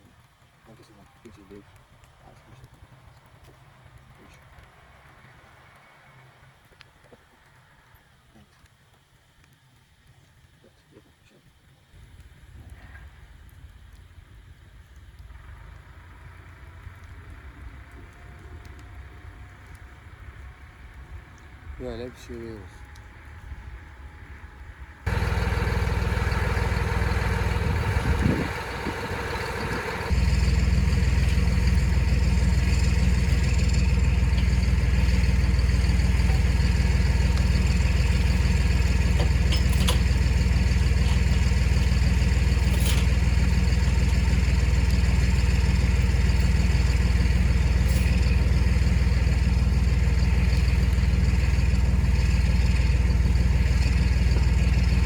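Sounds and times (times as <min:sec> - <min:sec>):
tractor engine running: 0:25.1 - 0:55.0.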